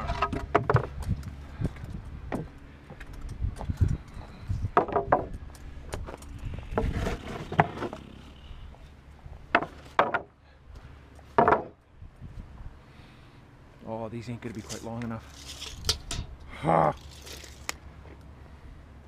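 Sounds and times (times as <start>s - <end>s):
wooden boards knocking together: 0.0s - 1.0s, 4.8s - 5.3s, 6.8s - 8.1s, 9.5s - 10.4s, 11.3s - 11.8s
steady low hum: 0.0s - 19.0s.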